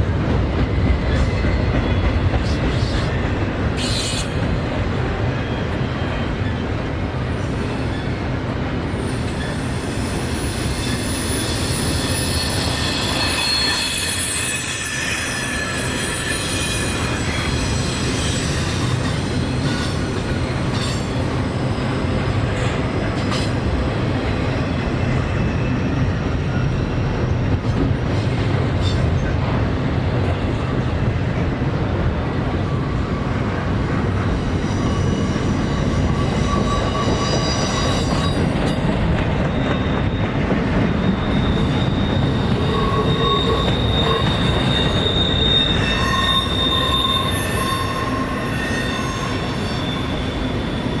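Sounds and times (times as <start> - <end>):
wheels squealing: 9.0 - 23.6, 32.7 - 51.0.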